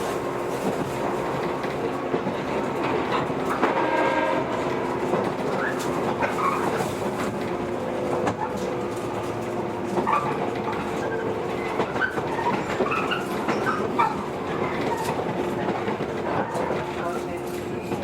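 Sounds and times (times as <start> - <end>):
train wheel and rail noise: 0.0 - 18.0.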